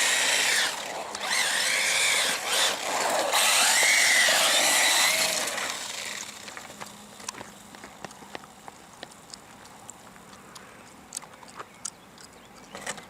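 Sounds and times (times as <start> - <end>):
toy car electric motor whining: 0.0 - 6.8.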